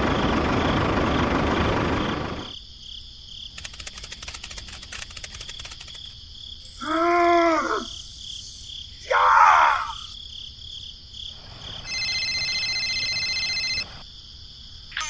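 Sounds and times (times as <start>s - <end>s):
crickets chirping: 1.8s - 15.0s
person groaning: 6.8s - 7.9s
person crying out: 6.8s - 8.0s, 9.0s - 10.1s
electronic phone tone: 11.8s - 13.9s.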